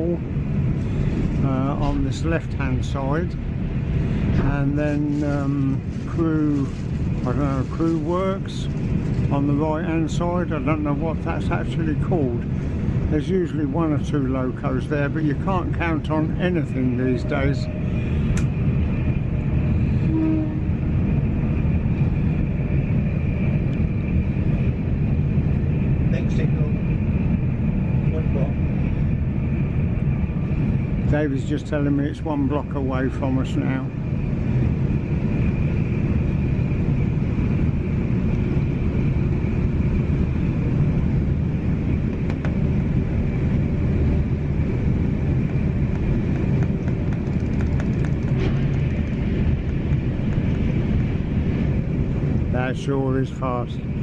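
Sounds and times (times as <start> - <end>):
train rumble from inside carriage: 0.0 - 54.0
faint high whine: 14.0 - 21.7.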